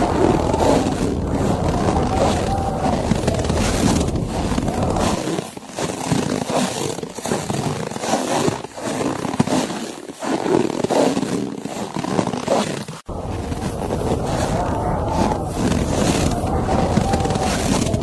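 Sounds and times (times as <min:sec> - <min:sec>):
wind noise: 0:00.0 - 0:05.2, 0:13.1 - 0:18.0.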